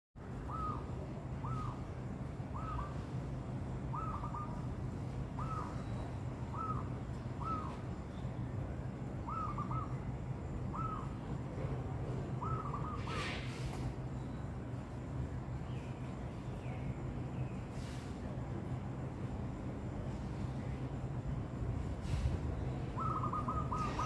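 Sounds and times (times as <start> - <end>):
steady low hum: 0.2 - 24.0
doves cooing: 23.0 - 24.0.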